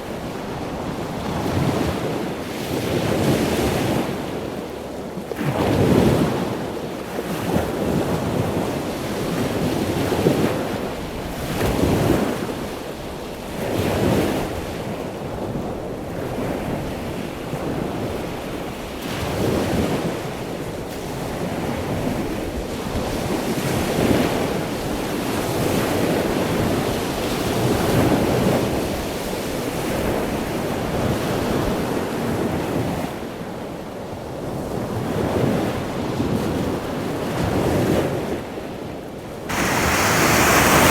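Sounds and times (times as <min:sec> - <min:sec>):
ocean surf breaking: 0:39.5 - 0:40.9
wind buffeting microphone: 0:39.5 - 0:40.9.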